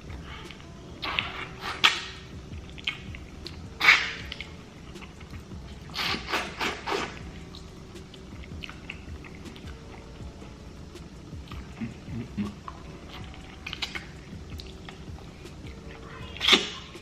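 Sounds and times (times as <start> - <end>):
wet mouth eating noises: 0.1 - 15.8, 16.4 - 17.0.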